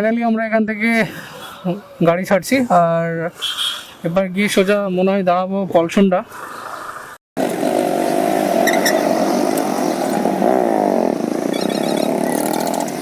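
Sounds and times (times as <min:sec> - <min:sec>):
motorcycle engine speeding up: 0:07.4 - 0:13.0.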